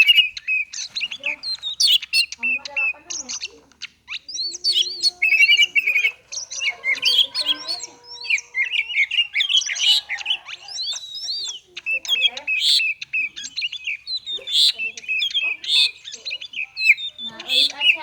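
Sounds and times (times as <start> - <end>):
bird singing fast chirps and whistles: 0.0 - 18.0.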